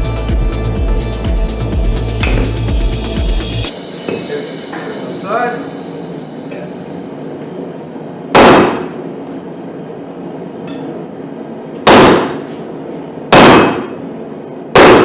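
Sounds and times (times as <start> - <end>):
hammer striking steel: 2.2 - 2.7, 4.0 - 7.0, 8.3 - 9.2, 11.9 - 12.6, 13.3 - 14.0, 14.8 - 15.0.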